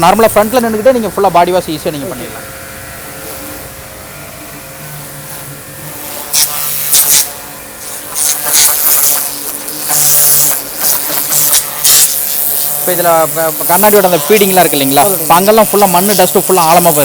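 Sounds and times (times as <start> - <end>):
pressure washer motor hum: 0.0 - 17.0
water jet hissing on car: 6.3 - 17.0.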